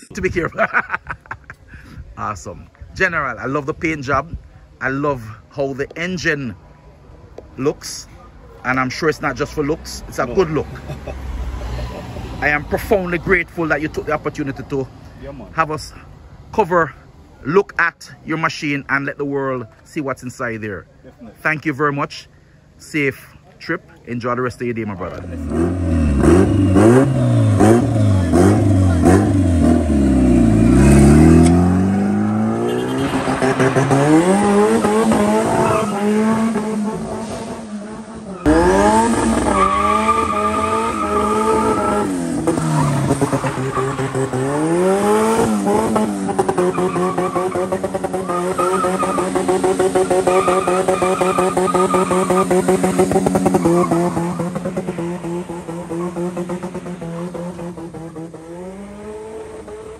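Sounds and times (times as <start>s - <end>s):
car engine revving hard: 25.2s - 59.9s.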